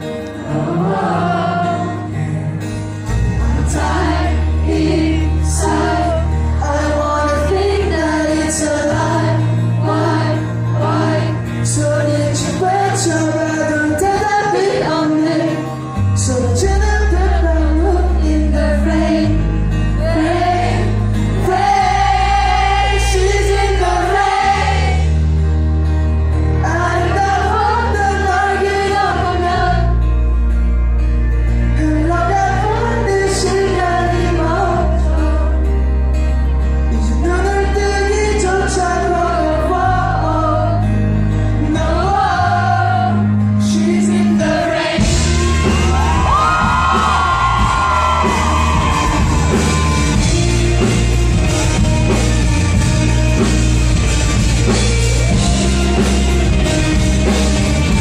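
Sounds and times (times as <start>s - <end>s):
live pop-rock band: 0.0s - 58.0s
man singing: 5.0s - 20.4s, 31.7s - 35.9s, 36.9s - 41.0s, 41.6s - 47.9s.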